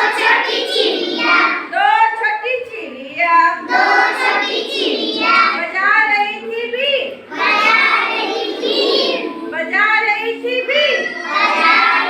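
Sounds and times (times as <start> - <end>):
children singing in unison: 0.0 - 1.7, 3.6 - 5.7, 7.3 - 9.7, 10.7 - 12.0.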